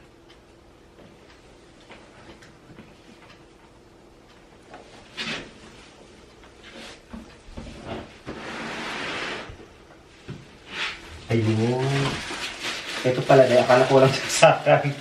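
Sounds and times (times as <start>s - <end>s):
rustling scrape: 7.6s - 9.6s, 10.6s - 15.0s.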